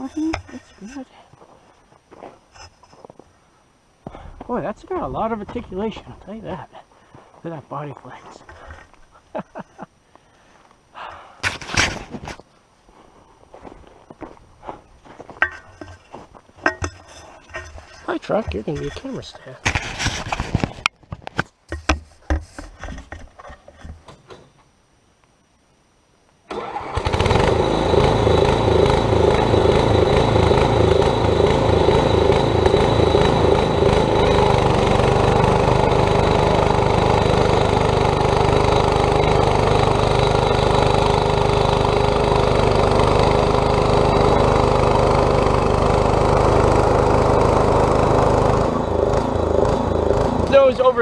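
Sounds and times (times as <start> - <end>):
small engine running: 26.5 - 51.0.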